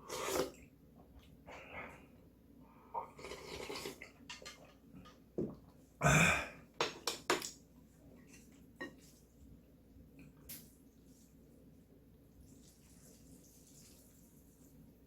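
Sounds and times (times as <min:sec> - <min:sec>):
noodles slurped and chewed: 0:00.0 - 0:00.7, 0:03.0 - 0:04.8.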